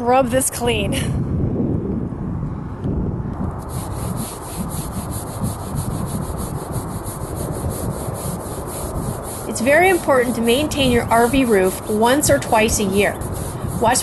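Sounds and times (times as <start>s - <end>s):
scrubbing on a rubber roof: 3.6s - 14.0s.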